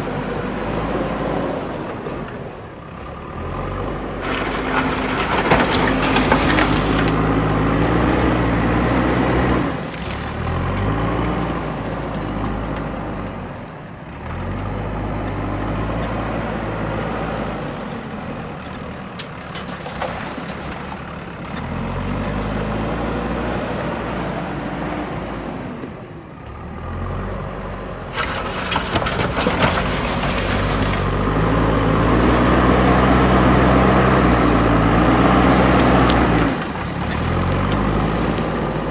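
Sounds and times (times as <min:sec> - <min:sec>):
diesel engine revving under load: 0:00.0 - 0:38.9.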